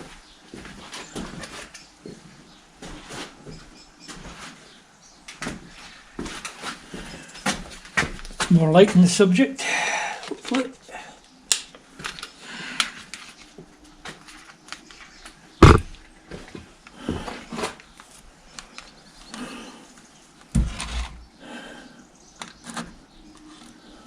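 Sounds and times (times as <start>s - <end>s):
heavy thumps: 15.6s - 15.9s
tools clicking and knocking: 15.6s - 15.9s.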